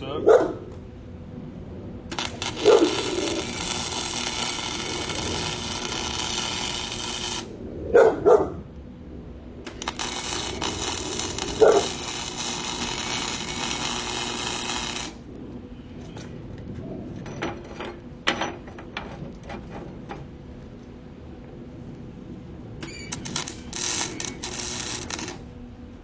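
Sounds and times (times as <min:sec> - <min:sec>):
dog barking: 0:00.2 - 0:00.7, 0:02.6 - 0:03.0, 0:07.9 - 0:08.6, 0:11.6 - 0:11.9
electric welder crackling: 0:02.1 - 0:07.6, 0:09.6 - 0:15.4, 0:22.8 - 0:25.6.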